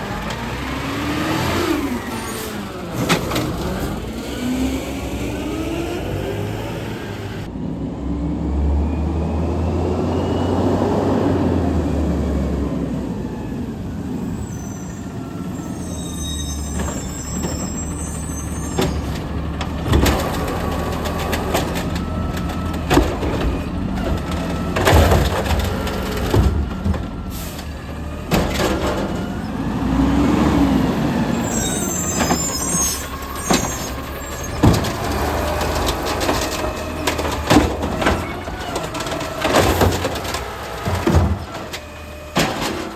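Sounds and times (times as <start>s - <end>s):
garbage truck engine running: 0.0s - 7.5s, 9.2s - 42.9s
high squeals and hissing: 14.3s - 19.2s, 31.3s - 34.7s.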